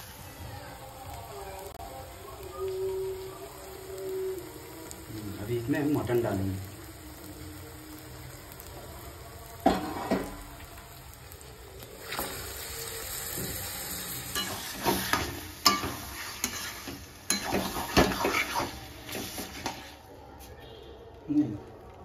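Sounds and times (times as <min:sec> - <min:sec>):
spices sizzling in a pan: 0:00.0 - 0:20.6
spatula scraping a metal pan: 0:14.3 - 0:20.0.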